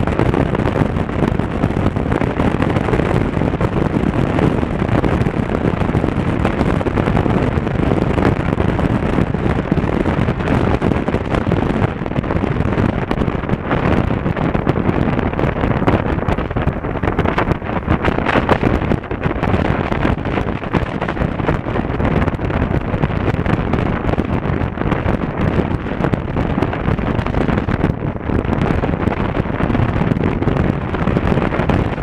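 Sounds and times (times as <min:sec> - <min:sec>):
road noise: 0:00.0 - 0:32.0
wind rushing on microphone: 0:00.0 - 0:32.0.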